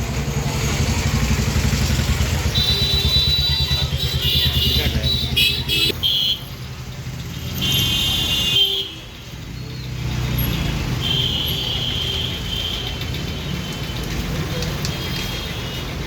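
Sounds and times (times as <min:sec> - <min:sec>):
road traffic: 0:00.0 - 0:16.0
high-pitched vehicle horns: 0:02.4 - 0:06.5, 0:07.6 - 0:09.1.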